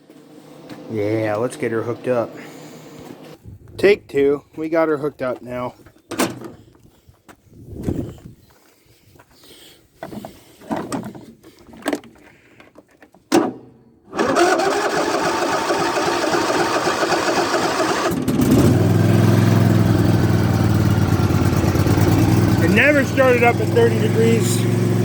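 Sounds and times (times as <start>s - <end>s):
mower engine running: 14.1s - 25.0s
starter cranking engine: 14.1s - 25.0s.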